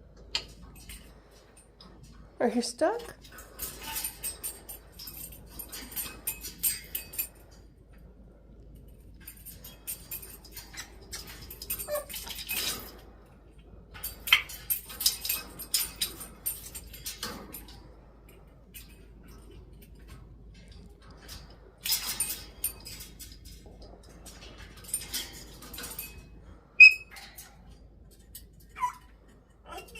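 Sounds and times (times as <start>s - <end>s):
parrot squeaks: 26.8s - 27.1s, 28.8s - 29.0s.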